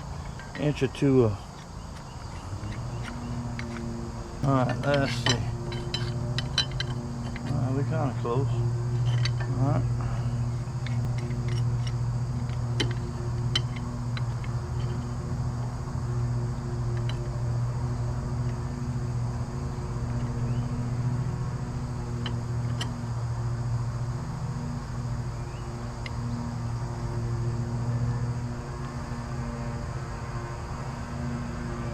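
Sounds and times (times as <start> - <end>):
low mechanical hum: 0.0 - 31.9.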